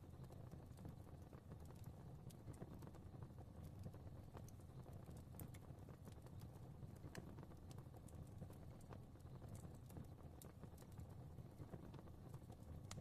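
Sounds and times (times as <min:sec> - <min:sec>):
fire crackling: 0:00.0 - 0:13.0
low rumble of flame: 0:00.0 - 0:13.0.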